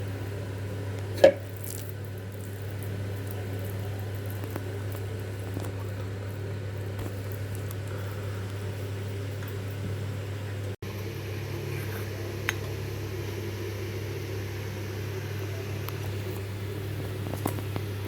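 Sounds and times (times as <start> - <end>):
steady low hum: 0.0 - 18.0
hands squishing meat mixture: 1.3 - 8.8.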